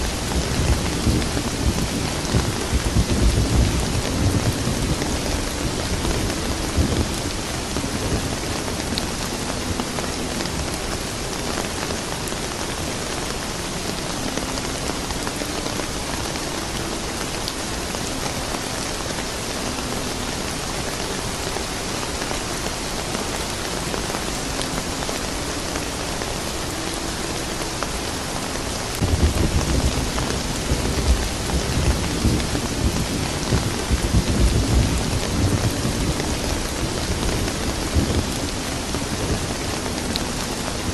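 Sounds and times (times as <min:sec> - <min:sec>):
thunder rumbling: 0:00.0 - 0:12.1, 0:28.9 - 0:40.9
steady rain falling: 0:00.0 - 0:40.9.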